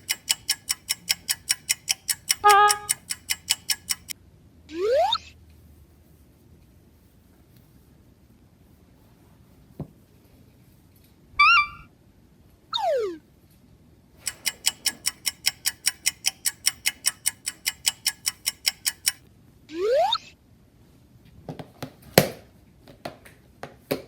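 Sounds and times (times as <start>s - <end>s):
cartoon click: 0.0s - 4.1s
fast even ticking: 0.0s - 4.1s, 14.2s - 19.2s.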